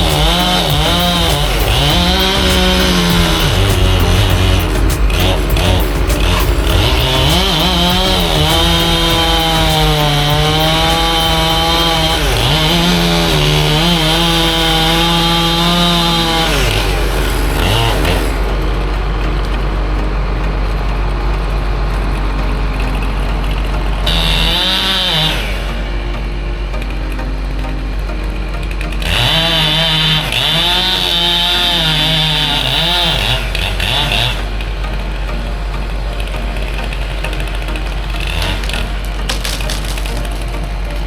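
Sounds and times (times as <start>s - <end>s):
chainsaw cutting wood: 0.0s - 18.5s, 24.1s - 25.6s, 29.0s - 34.4s, 38.2s - 41.0s
steady low drone: 0.0s - 41.0s.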